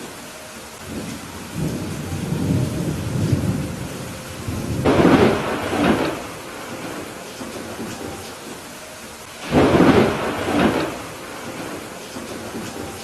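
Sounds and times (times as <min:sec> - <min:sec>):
steady rain: 0:00.0 - 0:13.0
thunder rumbling: 0:00.0 - 0:13.0.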